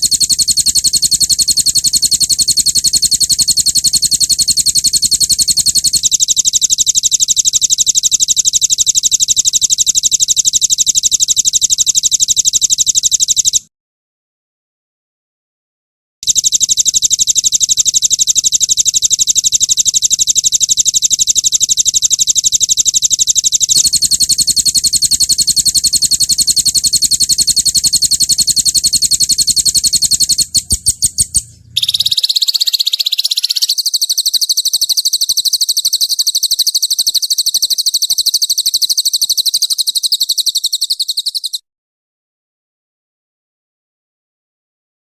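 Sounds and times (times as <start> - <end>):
songbird fast high trills: 23.8 - 38.4
sharp bird notes: 29.8 - 33.8.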